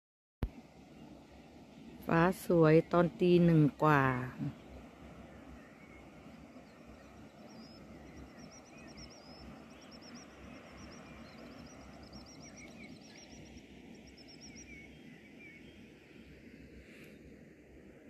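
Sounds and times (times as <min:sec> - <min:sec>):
faint outdoor background noise: 0:00.4 - 0:18.0
bird chirping: 0:05.5 - 0:15.9.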